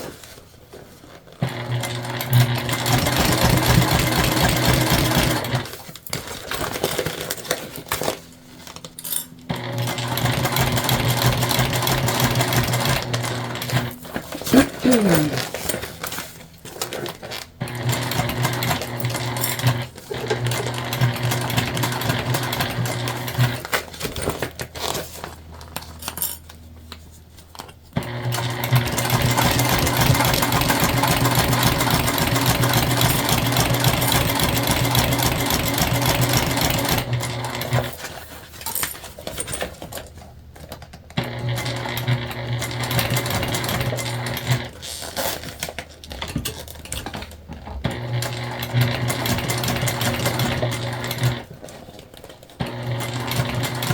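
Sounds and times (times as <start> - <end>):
sewing machine stitching: 1.4 - 7.3, 9.5 - 15.9, 16.8 - 24.9, 28.0 - 38.0, 41.2 - 45.8, 47.8 - 52.0, 52.6 - 53.9.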